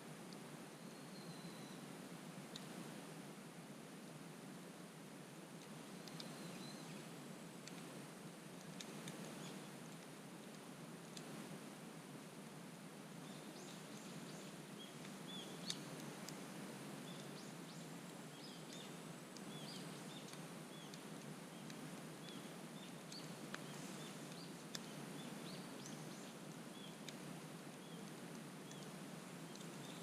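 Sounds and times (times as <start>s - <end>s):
small birds chirping: 0.7s - 2.8s, 5.8s - 8.0s, 8.6s - 10.0s, 13.1s - 30.0s.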